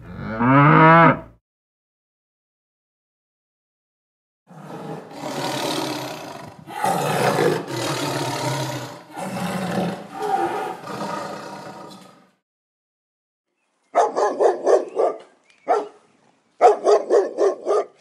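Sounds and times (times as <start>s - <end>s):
tiger roaring: 4.5s - 12.4s.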